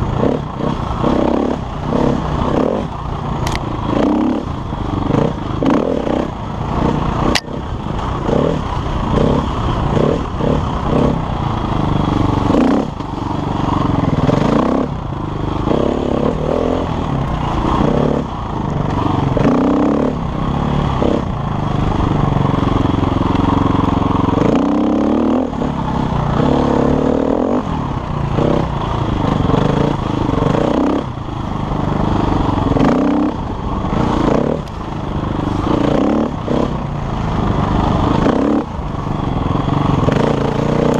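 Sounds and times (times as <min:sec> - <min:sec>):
motorcycle engine revving: 0:00.0 - 0:40.9
sharp click: 0:07.3 - 0:07.6.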